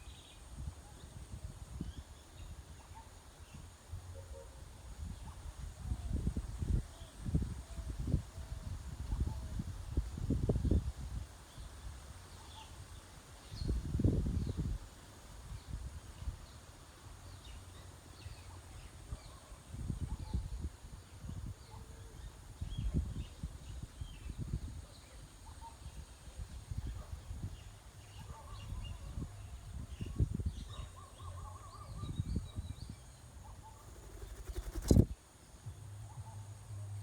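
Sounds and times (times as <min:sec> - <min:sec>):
faint bird chirps: 0:26.8 - 0:35.2.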